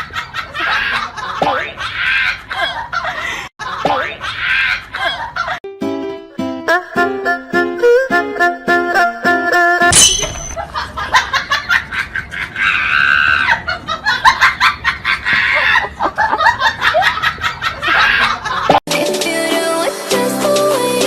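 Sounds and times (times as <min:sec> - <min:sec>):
people laughing: 0:00.0 - 0:05.6, 0:10.6 - 0:18.8
music: 0:05.7 - 0:09.9, 0:18.9 - 0:21.0.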